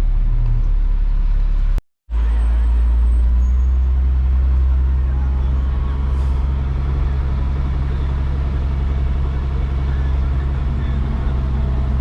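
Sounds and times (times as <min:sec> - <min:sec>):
truck engine droning: 0:00.0 - 0:12.0.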